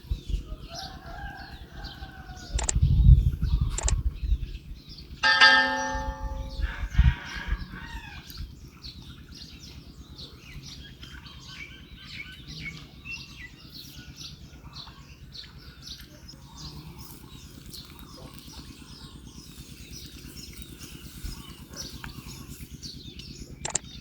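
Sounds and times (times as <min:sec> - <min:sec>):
small birds chirping: 0:00.0 - 0:24.0
low background rumble: 0:05.8 - 0:24.0.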